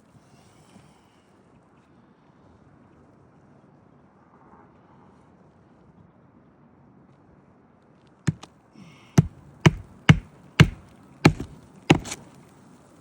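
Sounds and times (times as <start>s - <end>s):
hatchet hammering a nail: 8.3s - 8.5s, 9.2s - 12.2s.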